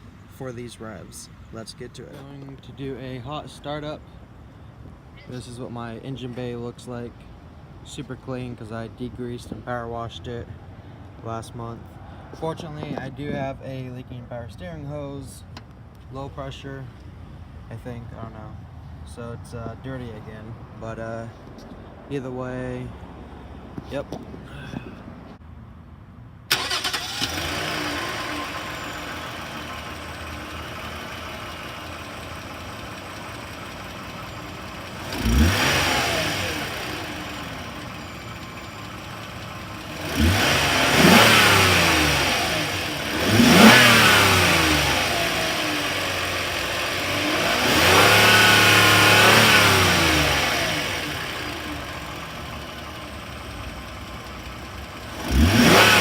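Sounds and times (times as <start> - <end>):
car engine idling and revving: 26.5 - 56.0.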